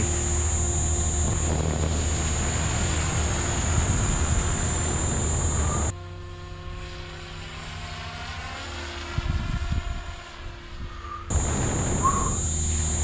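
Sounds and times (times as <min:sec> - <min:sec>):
gusty low rumble: 0:00.0 - 0:05.9, 0:09.2 - 0:13.0
helicopter motor and rotor whine: 0:00.0 - 0:13.0.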